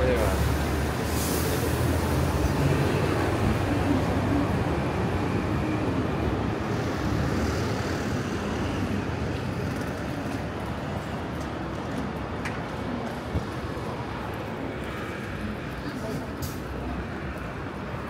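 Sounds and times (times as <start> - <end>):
heavy vehicle engine rumbling: 0.0 - 5.3
city street traffic: 0.0 - 18.0.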